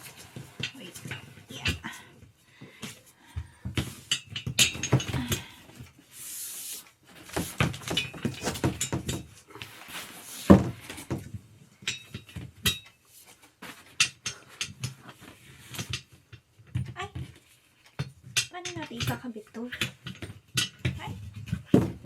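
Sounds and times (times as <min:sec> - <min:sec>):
chair parts clattering: 0:00.0 - 0:06.0, 0:06.8 - 0:22.0.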